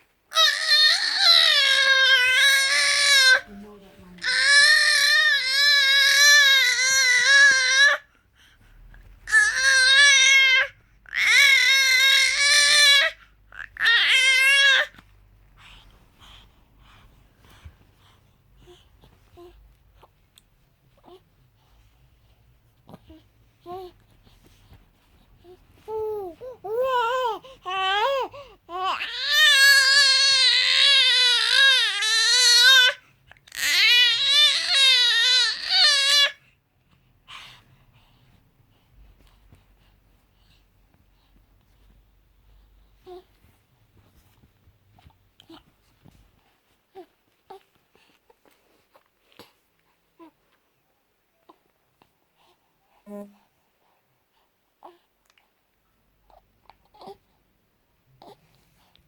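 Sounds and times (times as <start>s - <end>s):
infant crying: 0.3s - 3.5s, 4.2s - 8.0s, 9.3s - 14.9s, 25.9s - 36.4s.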